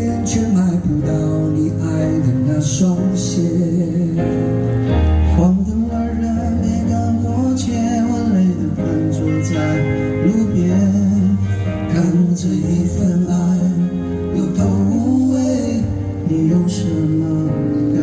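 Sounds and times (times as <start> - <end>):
live band playing rock ballad: 0.0 - 18.0.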